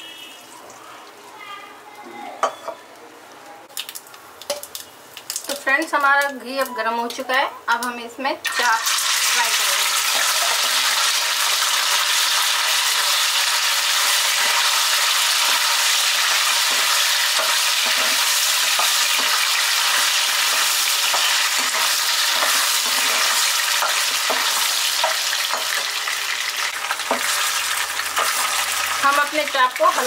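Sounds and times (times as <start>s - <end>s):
food sizzling in hot fat: 7.8s - 30.0s.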